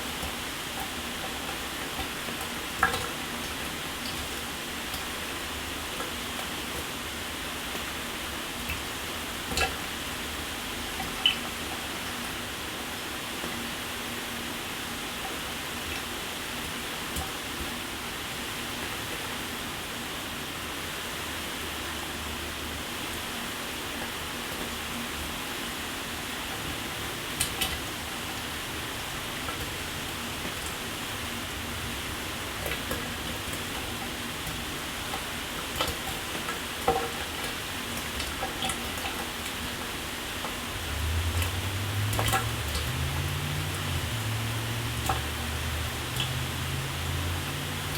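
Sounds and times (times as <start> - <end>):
water spattering: 27.3 - 47.9.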